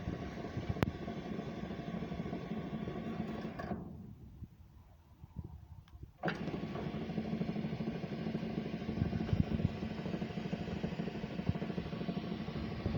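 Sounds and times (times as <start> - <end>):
gate motor humming: 6.2 - 12.9.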